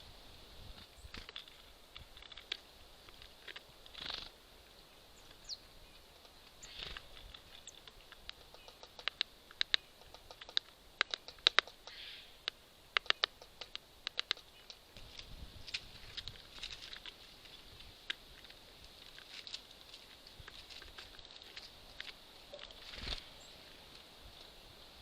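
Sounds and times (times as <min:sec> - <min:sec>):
bird pecking at seeds: 0:00.8 - 0:04.4, 0:05.2 - 0:24.9.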